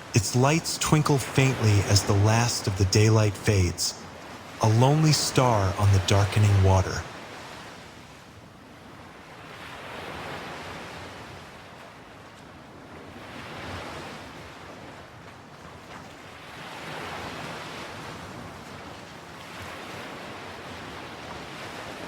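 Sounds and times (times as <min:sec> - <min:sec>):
ocean waves breaking on shore: 0:00.0 - 0:22.0.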